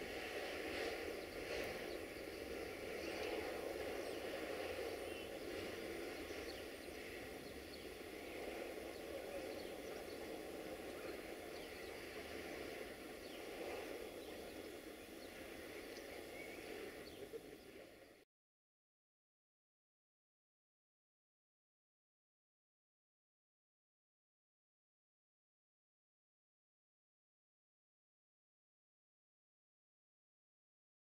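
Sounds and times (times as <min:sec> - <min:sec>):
distant freight train rumble: 0:00.0 - 0:18.2
birds chirping: 0:00.4 - 0:18.2.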